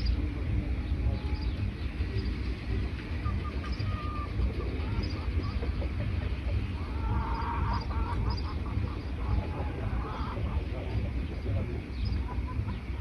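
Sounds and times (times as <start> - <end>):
birds chattering calls: 0.0 - 13.0
steady low rumble: 0.0 - 13.0.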